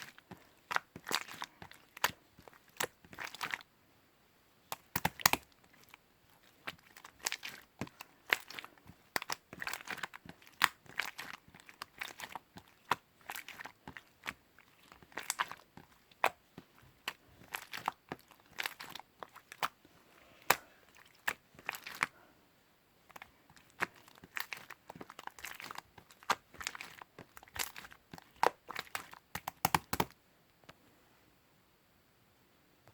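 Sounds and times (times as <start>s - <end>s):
slime crackling pops: 4.8s - 5.5s.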